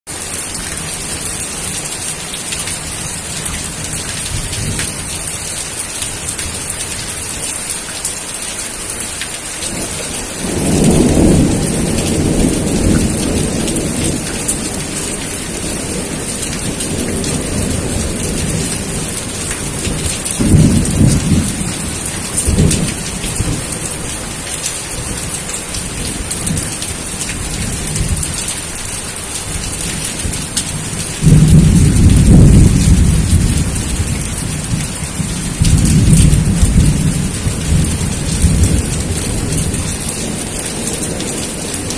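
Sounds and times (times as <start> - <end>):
steady rain falling: 0.1 - 41.9
thunder rumbling: 9.6 - 28.4, 29.5 - 41.9
thunder claps: 9.7 - 23.9, 29.8 - 41.9.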